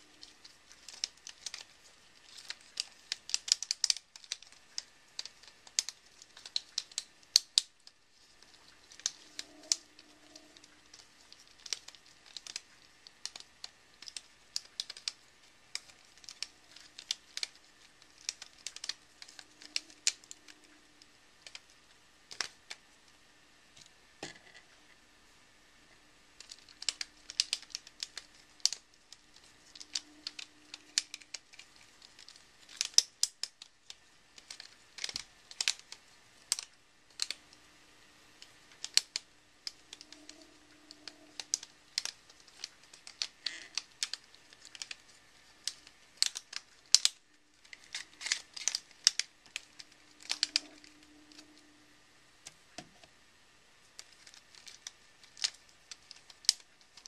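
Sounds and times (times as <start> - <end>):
plastic puzzle clicking: 0.1 - 20.8, 21.4 - 22.8, 26.4 - 37.5, 38.4 - 51.6, 54.0 - 57.0.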